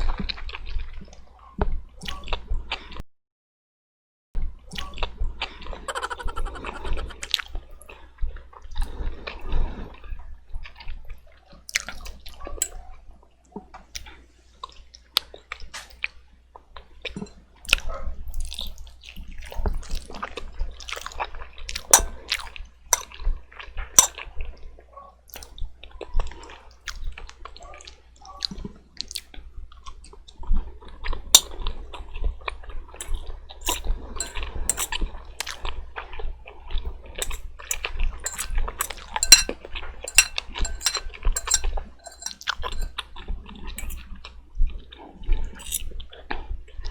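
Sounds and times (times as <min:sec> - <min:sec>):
mouth clicks: 0:05.9 - 0:07.3.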